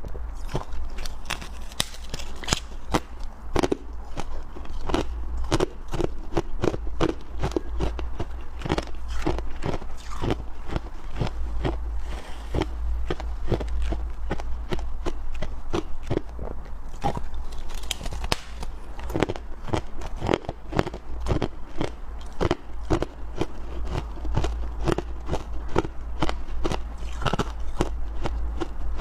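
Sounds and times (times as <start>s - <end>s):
low steady hum: 0.0s - 29.0s
chewing ice crunches: 0.4s - 29.0s.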